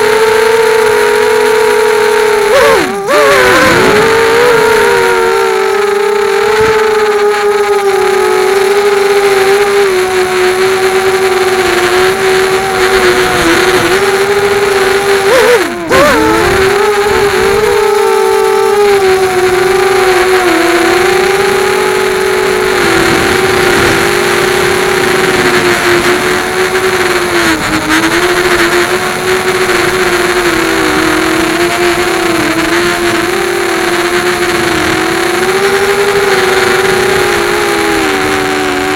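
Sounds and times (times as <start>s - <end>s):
quadcopter motors whining: 0.0s - 38.9s.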